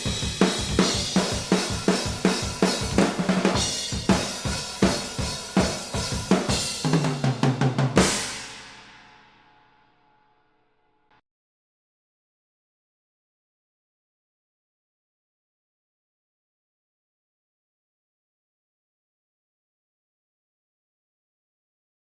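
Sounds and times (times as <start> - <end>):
drum kit playing rock beat: 0.0 - 9.0
cymbal crash ringing: 8.0 - 9.8.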